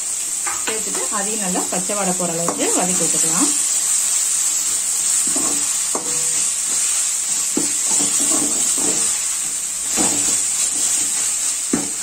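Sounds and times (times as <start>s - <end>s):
food sizzling in hot oil: 0.0s - 12.0s
ladle scraping a metal pan: 7.8s - 9.2s.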